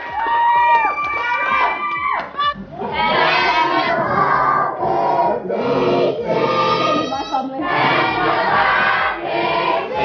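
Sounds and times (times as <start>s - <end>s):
crowd noise: 0.0s - 10.0s
group of people singing: 2.7s - 10.0s.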